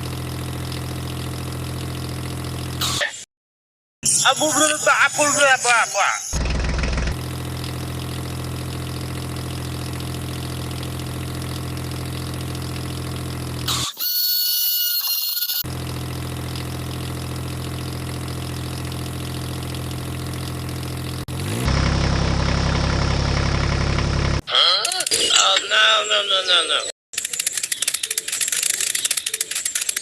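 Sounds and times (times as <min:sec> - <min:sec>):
engine-like drone: 0:00.0 - 0:03.0, 0:06.3 - 0:14.0, 0:15.6 - 0:24.4.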